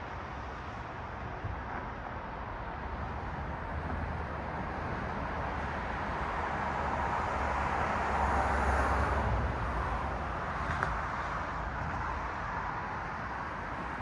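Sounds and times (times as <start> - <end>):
car passing by: 5.7 - 12.0.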